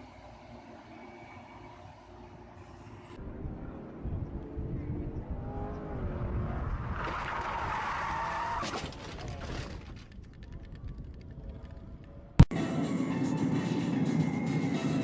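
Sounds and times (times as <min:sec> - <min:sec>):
car engine and tyres running: 0:00.0 - 0:12.4
rushing tyre skid: 0:06.2 - 0:08.8.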